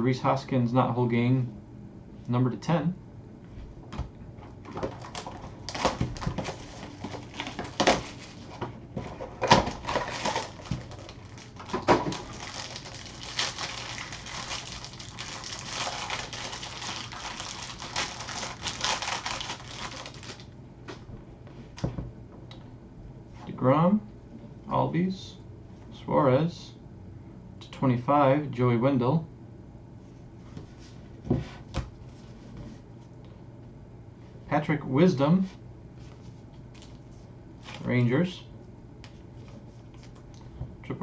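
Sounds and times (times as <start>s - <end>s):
wrapper crackling: 4.9s - 8.5s, 9.7s - 20.5s.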